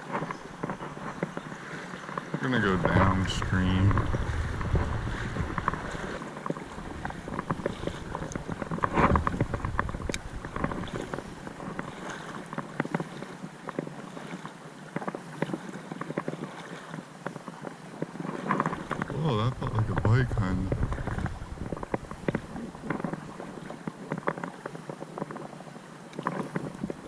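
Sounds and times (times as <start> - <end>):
wind rumble on microphone: 0.0 - 14.5, 17.5 - 25.5, 26.1 - 27.0
water sloshing and splashing: 0.0 - 27.0.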